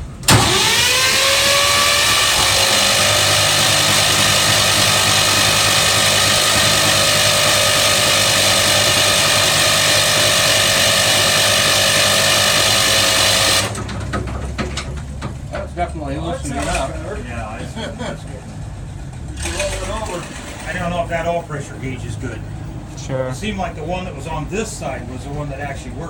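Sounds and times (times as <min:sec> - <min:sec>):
diesel engine starter cranking: 0:00.0 - 0:17.3, 0:18.6 - 0:21.3.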